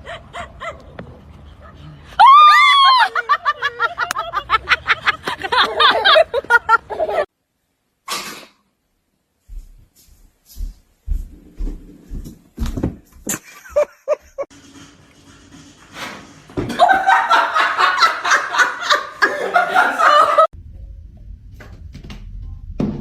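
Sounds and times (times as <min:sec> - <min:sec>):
person laughing hard: 0:02.2 - 0:07.3, 0:13.3 - 0:14.5, 0:16.7 - 0:20.5.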